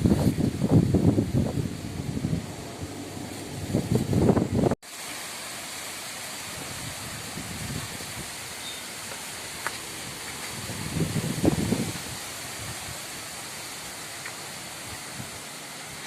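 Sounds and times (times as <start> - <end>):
gusty wind on microphone: 0.0 - 4.8, 6.4 - 8.6, 9.4 - 14.0, 14.6 - 15.5
rushing wind hiss: 0.0 - 16.0.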